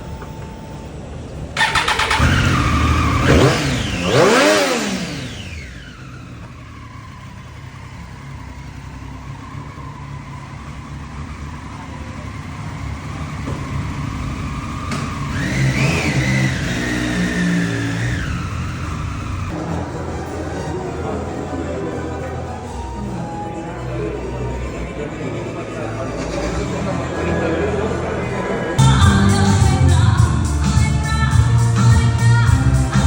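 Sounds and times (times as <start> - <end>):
motorcycle engine revving: 1.6 - 22.9.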